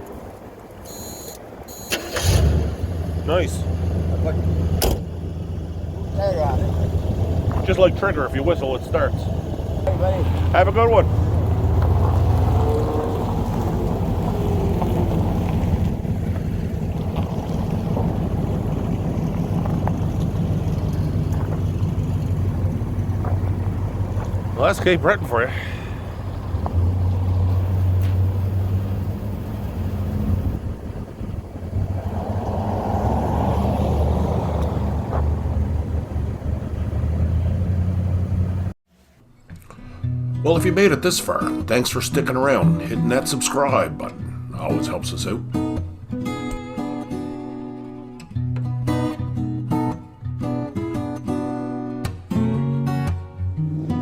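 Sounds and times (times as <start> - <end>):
road noise: 0.0 - 38.8, 40.6 - 48.6
car engine humming: 0.7 - 38.8
wind on microphone: 26.4 - 37.0.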